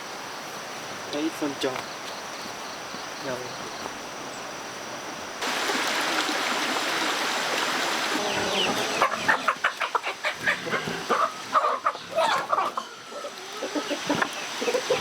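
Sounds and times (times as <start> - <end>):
chickens clucking: 8.1 - 15.0.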